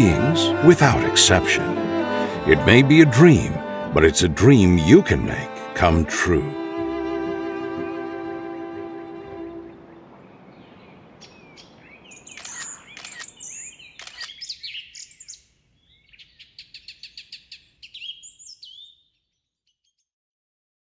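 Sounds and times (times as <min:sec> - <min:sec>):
small birds chirping: 0:10.2 - 0:20.1.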